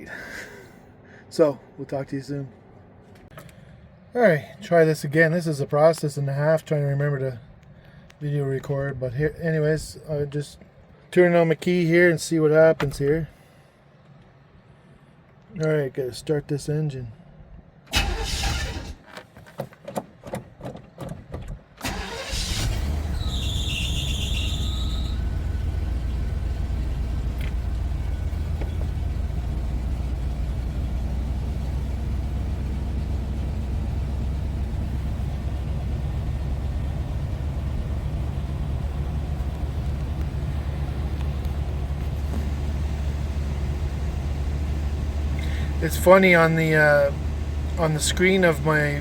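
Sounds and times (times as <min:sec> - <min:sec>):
van engine cranking and idling: 0:17.8 - 0:19.2, 0:19.9 - 0:49.0.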